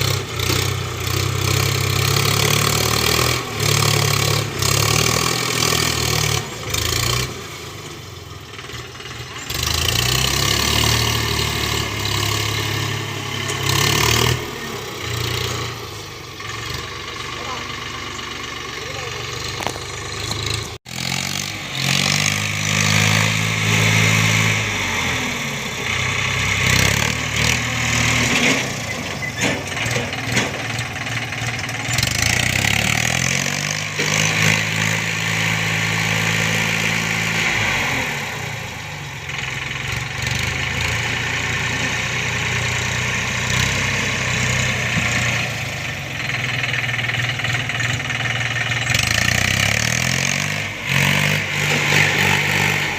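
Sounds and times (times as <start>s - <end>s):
tractor diesel engine working: 0.0s - 52.9s.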